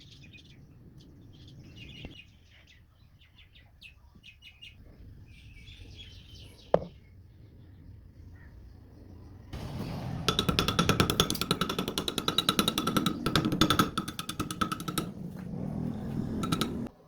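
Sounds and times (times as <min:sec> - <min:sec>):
bolt spinning rattling: 0:09.6 - 0:16.9.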